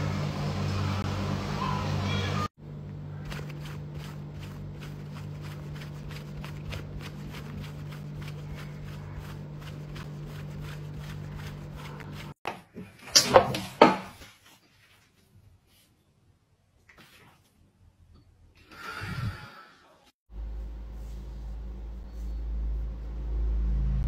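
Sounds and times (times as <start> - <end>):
steady low hum: 0.0 - 12.4, 20.3 - 24.0
hand rubbing cat fur: 3.2 - 12.4.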